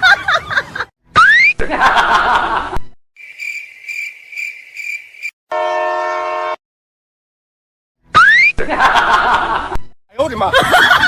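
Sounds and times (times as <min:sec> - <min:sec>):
high cricket-like chirp: 0:03.2 - 0:05.4
train horn blast: 0:05.5 - 0:06.6.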